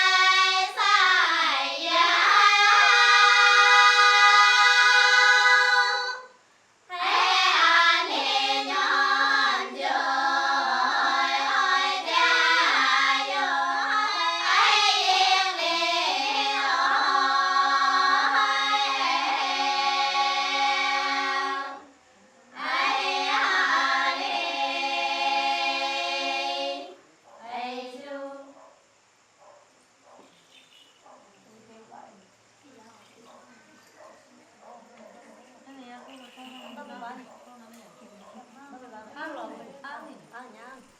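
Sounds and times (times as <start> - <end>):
women's choir singing unaccompanied: 0.0 - 28.6, 33.4 - 40.9.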